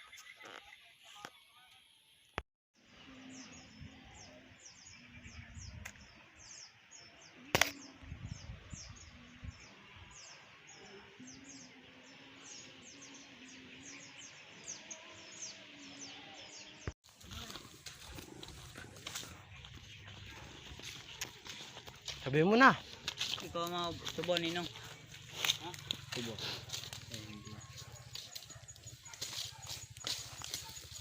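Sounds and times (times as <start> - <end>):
small birds chirping: 3.3 - 31.0
sharp click: 7.6 - 7.8.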